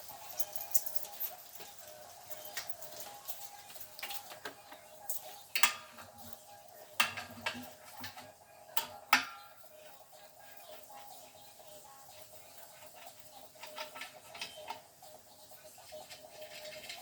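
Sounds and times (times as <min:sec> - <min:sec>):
metal tools clinking and knocking: 0:00.0 - 0:06.4, 0:13.0 - 0:14.8.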